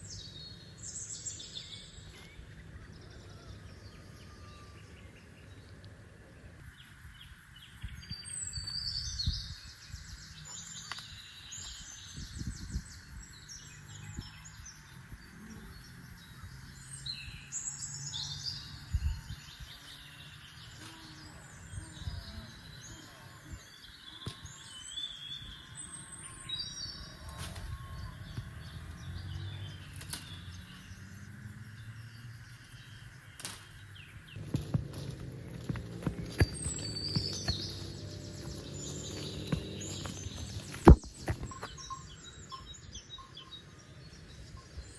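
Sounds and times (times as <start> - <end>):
birds chirping trills: 6.6 - 44.9
low knocks and rustles: 34.4 - 41.7.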